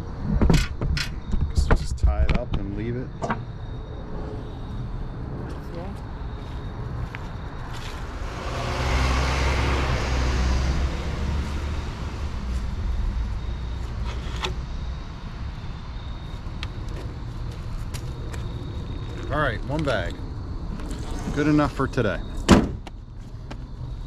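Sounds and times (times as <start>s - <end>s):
vehicle driving past: 3.6s - 15.6s.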